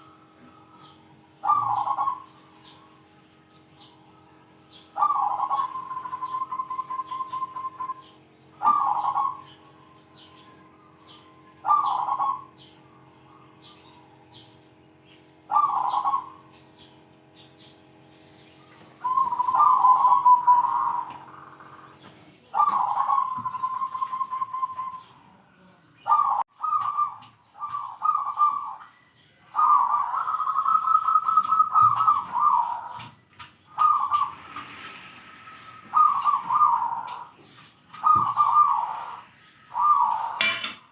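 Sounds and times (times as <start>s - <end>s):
dove cooing: 0.0s - 3.1s, 4.7s - 14.4s, 15.5s - 16.6s, 19.0s - 25.2s, 26.0s - 40.9s.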